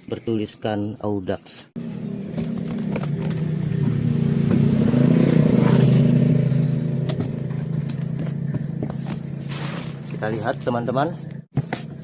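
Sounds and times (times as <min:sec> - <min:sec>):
vehicle engine passing by: 0:01.8 - 0:10.2.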